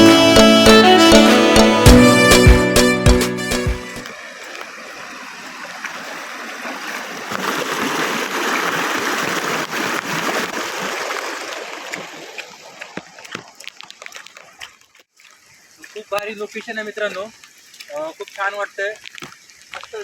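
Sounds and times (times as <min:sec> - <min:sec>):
stream water rushing: 0:00.0 - 0:13.4.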